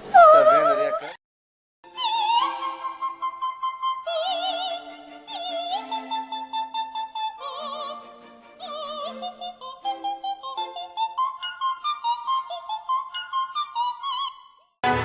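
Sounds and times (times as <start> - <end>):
operatic singing with vibrato: 1.9 - 15.0.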